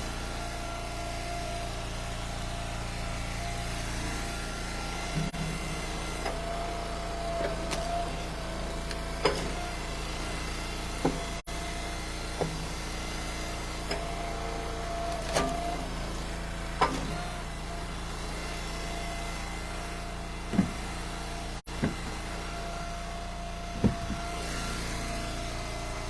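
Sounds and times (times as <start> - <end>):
wood splitter engine running: 0.0 - 26.0
firewood knocking into truck bed: 20.5 - 20.8, 23.8 - 24.3.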